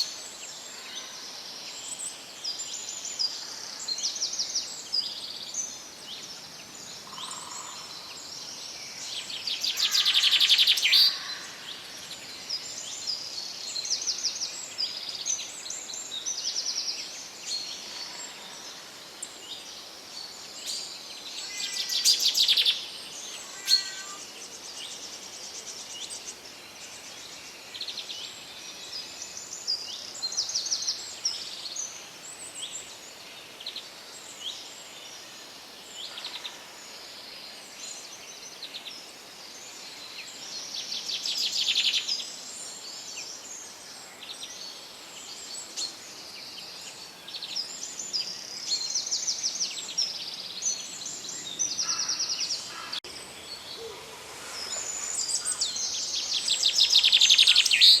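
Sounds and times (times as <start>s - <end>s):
forest ambience hiss: 0.0s - 58.0s
birds singing and chirping: 9.0s - 13.9s, 20.2s - 25.0s, 44.1s - 58.0s
rapid trilling birdsong: 50.6s - 58.0s.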